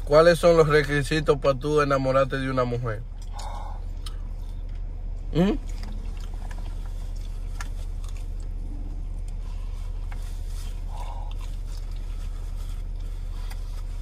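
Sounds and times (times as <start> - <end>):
car engine idling: 0.0 - 14.0
chewing and biting: 3.2 - 14.0.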